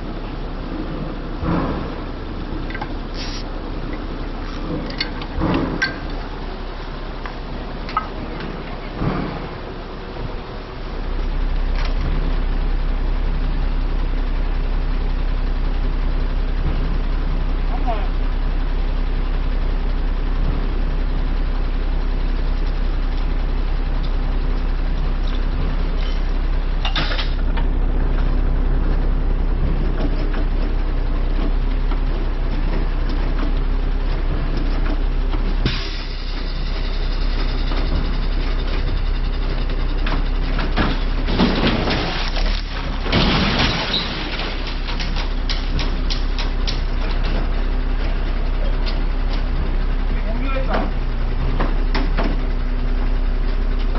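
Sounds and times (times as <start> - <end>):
truck diesel engine idling: 0.0 - 53.9
hissing bursts: 3.1 - 3.6.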